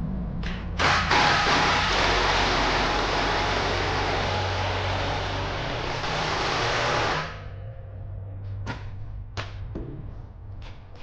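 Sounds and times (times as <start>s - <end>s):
low hum: 0.0s - 11.0s
loud rushing hiss: 0.8s - 7.4s.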